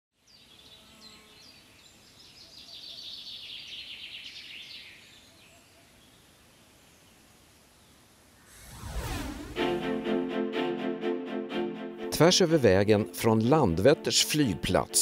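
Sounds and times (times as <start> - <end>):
songbird chirping and trilling: 0.2 - 8.0
faint outdoor hiss: 0.2 - 10.1.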